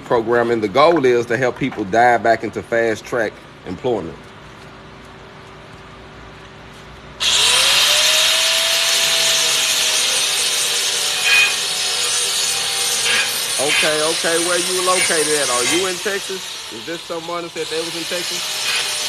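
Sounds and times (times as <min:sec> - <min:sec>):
power grinder grinding metal: 0:07.2 - 0:19.0.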